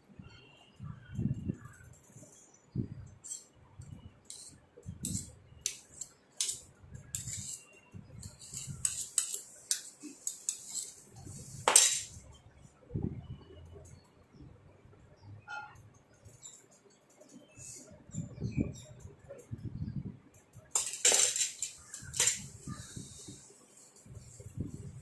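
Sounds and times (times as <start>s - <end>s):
utensils and dishes clinking: 4.3s - 12.2s, 20.7s - 23.4s
dishes clattering: 11.6s - 12.2s, 20.7s - 22.5s.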